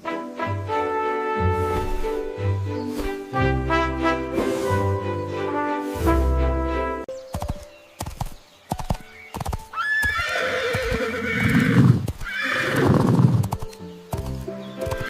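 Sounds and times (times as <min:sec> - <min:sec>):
brass music: 0:00.0 - 0:07.1
horse hooves clip-clopping: 0:07.3 - 0:15.0
horse whinnying: 0:09.7 - 0:13.4.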